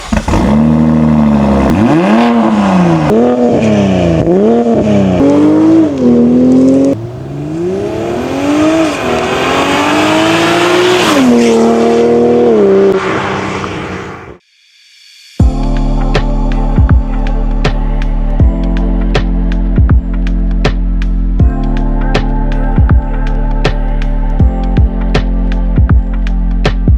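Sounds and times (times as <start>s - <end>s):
car engine revving: 0.0s - 14.4s.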